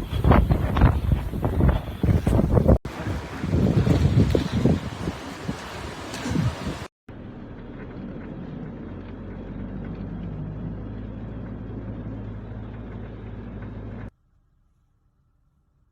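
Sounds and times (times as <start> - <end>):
road noise: 0.0 - 14.1
vehicle engine running: 7.1 - 14.1.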